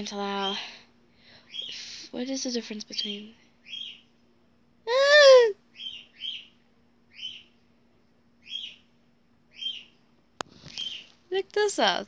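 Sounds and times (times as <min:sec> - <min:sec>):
small bird chirping: 0:01.4 - 0:02.1, 0:02.8 - 0:04.2, 0:05.1 - 0:07.6, 0:08.4 - 0:11.2.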